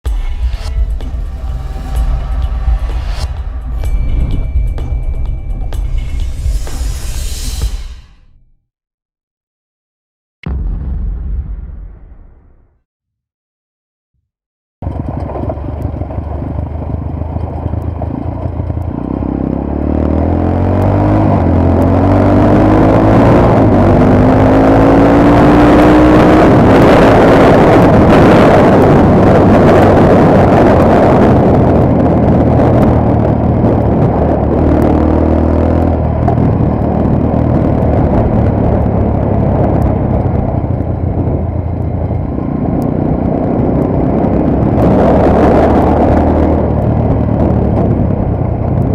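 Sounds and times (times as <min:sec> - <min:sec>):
motorcycle engine accelerating: 0:14.8 - 0:48.9
wind rush on microphone: 0:20.9 - 0:48.9.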